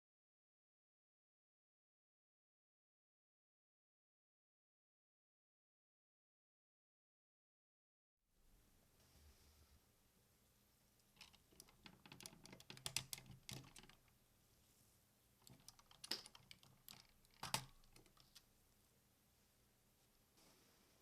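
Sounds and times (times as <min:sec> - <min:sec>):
plastic toy parts clicking: 0:11.1 - 0:14.1, 0:15.4 - 0:18.4.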